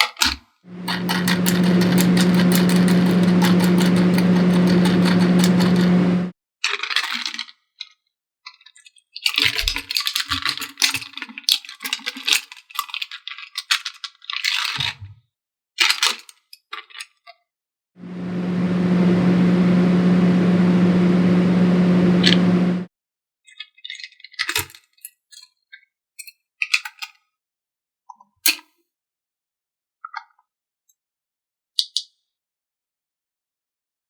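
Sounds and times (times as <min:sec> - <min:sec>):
loud steady hum: 0:00.7 - 0:06.3, 0:18.0 - 0:22.9.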